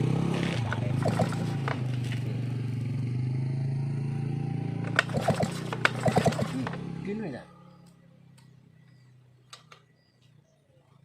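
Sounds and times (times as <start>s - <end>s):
chainsaw engine idling: 0.6s - 2.6s, 4.8s - 7.2s.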